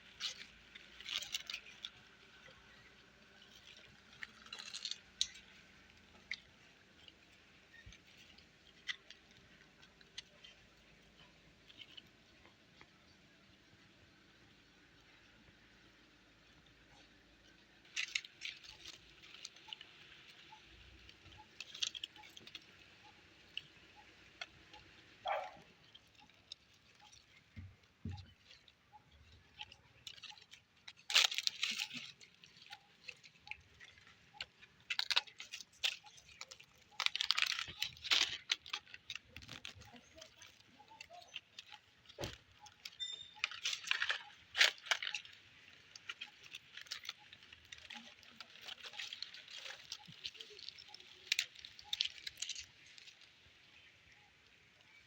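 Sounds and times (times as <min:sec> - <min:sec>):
puppies scratching and rustling: 0:17.8 - 0:53.8.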